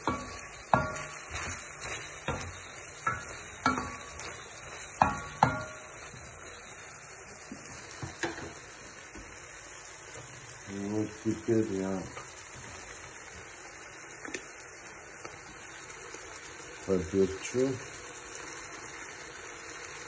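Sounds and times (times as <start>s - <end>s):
spoon knocking metal pot: 0.0s - 1.6s, 2.2s - 4.3s, 4.9s - 5.9s.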